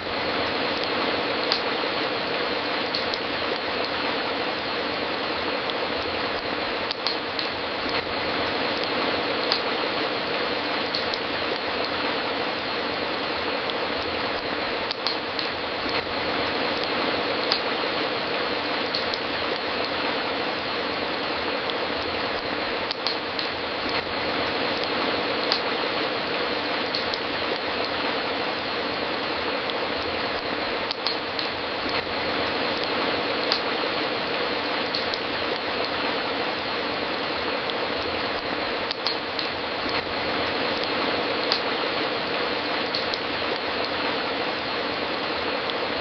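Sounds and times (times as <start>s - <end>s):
wood fire crackling: 0.0s - 46.0s
sharp pops from fire: 1.4s - 1.8s, 2.9s - 4.0s, 6.0s - 8.1s, 8.8s - 9.8s, 10.9s - 12.0s, 14.0s - 16.1s, 16.8s - 17.8s, 18.9s - 20.0s, 22.0s - 24.1s, 24.8s - 25.8s, 26.9s - 28.0s, 30.0s - 32.1s, 32.8s - 33.8s, 38.4s - 40.1s, 40.8s - 41.8s.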